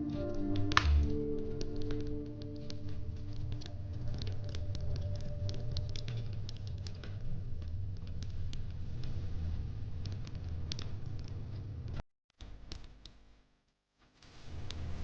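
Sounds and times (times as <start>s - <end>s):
held background music note: 0.0s - 5.8s
low fire rumble: 0.0s - 12.0s, 14.3s - 15.0s
fire crackling and popping: 0.0s - 13.2s, 14.1s - 15.0s.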